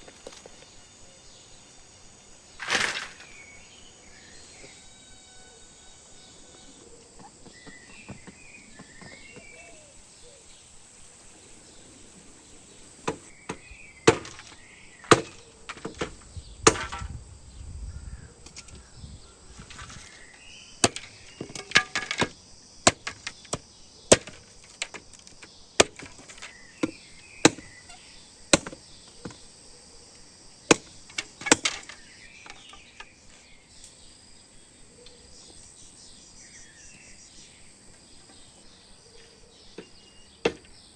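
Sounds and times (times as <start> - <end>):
wood being chopped: 0.0 - 0.6, 2.6 - 3.4, 13.1 - 17.1, 19.6 - 27.9, 28.5 - 29.4, 30.7 - 33.2, 39.8 - 40.8
insects buzzing: 0.0 - 40.9
birds chirping: 11.4 - 29.6, 30.6 - 40.9.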